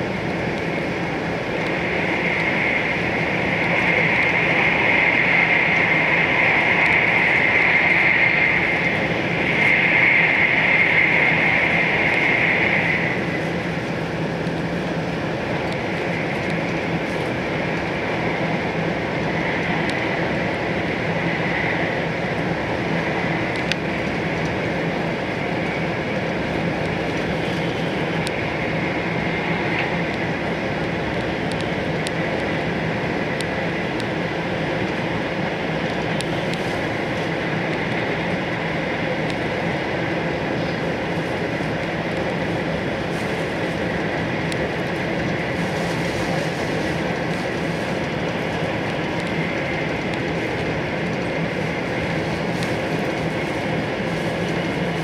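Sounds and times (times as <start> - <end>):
train wheels rumbling on rail: 0.0 - 55.0
light ticks: 23.5 - 24.6, 31.2 - 32.2.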